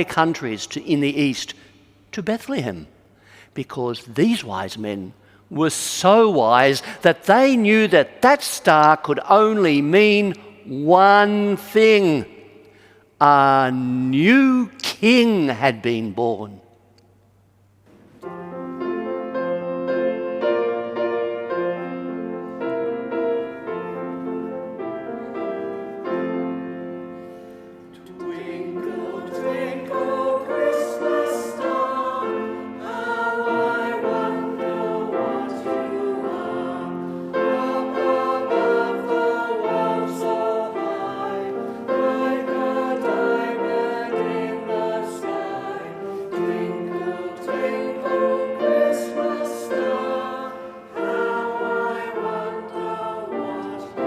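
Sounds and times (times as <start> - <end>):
piano accompaniment: 17.9 - 54.0
choir singing: 27.9 - 54.0.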